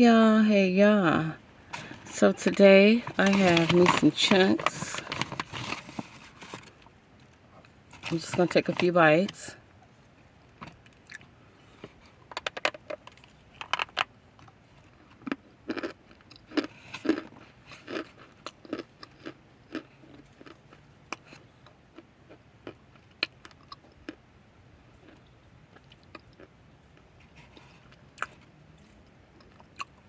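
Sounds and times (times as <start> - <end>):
cornstarch chunks being chewed: 12.4 - 24.2, 25.0 - 30.0.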